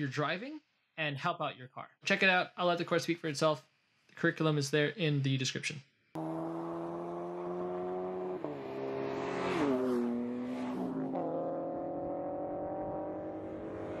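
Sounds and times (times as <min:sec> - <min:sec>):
car engine pulling hard: 0:06.2 - 0:14.0.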